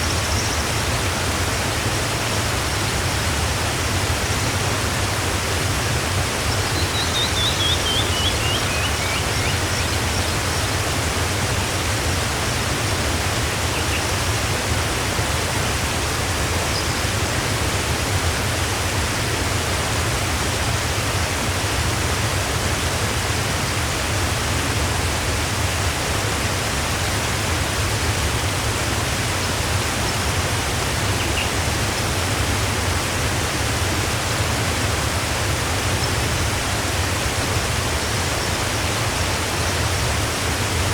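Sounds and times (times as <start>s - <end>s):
waterfall rushing: 0.0s - 40.9s
faint bird chirps: 6.6s - 10.6s, 31.2s - 31.6s.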